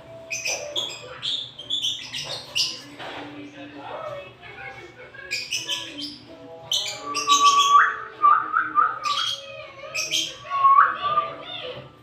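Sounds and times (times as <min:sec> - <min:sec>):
lovebirds chirping shrilly: 0:00.2 - 0:02.9, 0:05.3 - 0:11.6.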